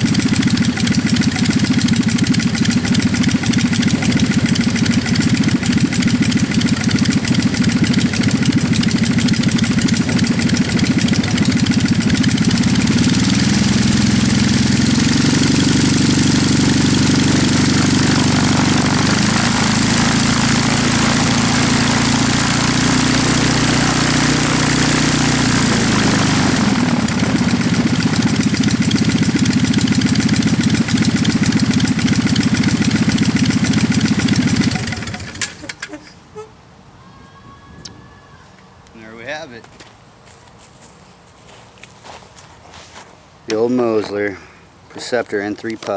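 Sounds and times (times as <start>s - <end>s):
small aircraft engine and propeller: 0.0s - 36.2s.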